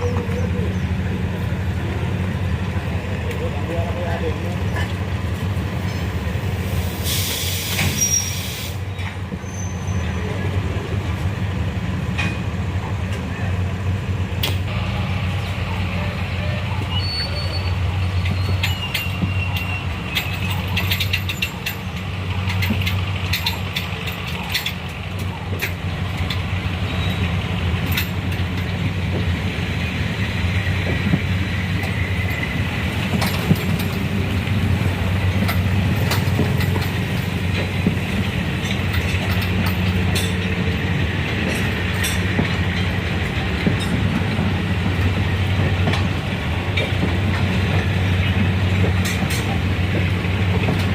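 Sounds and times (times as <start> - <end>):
train engine hum: 0.0 - 50.9
clicks and rattles: 35.3 - 40.5.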